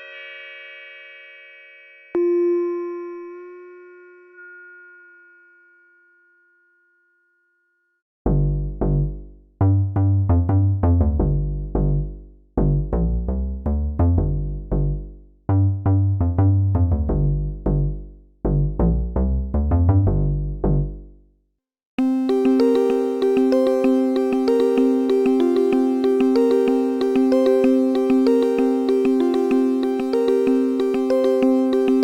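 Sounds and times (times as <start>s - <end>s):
bright ringing synthesizer tones: 2.2s - 6.2s, 22.0s - 32.0s
plucked synthesizer bass notes: 8.3s - 21.1s, 22.0s - 32.0s.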